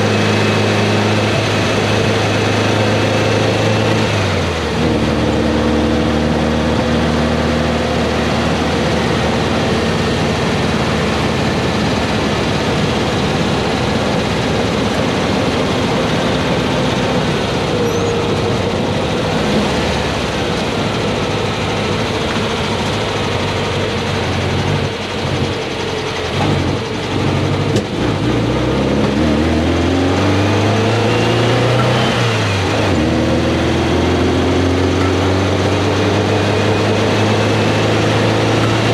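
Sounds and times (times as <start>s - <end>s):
car engine pulling: 0.0s - 38.9s
wind and road noise: 0.0s - 38.9s.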